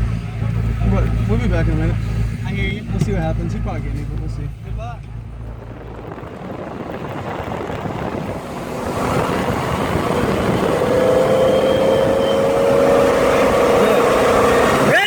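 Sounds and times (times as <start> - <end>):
car engine accelerating: 0.0 - 15.0
steady whine: 0.0 - 15.0
rushing noise: 5.2 - 15.0.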